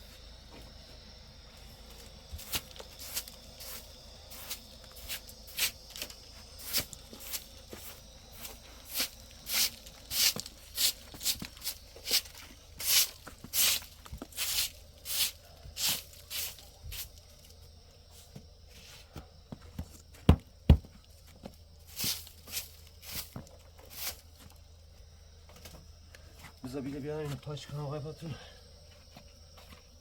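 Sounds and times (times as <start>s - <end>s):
footsteps crunching through snow: 1.7s - 17.1s, 21.9s - 24.3s.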